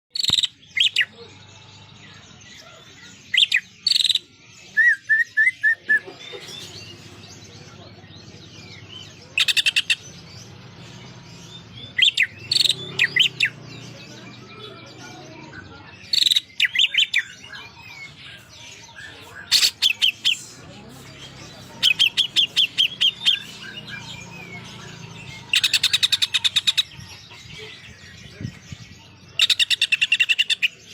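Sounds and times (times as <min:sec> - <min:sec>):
bird whistling and chattering: 0:03.3 - 0:06.5, 0:09.4 - 0:10.0, 0:18.1 - 0:24.7.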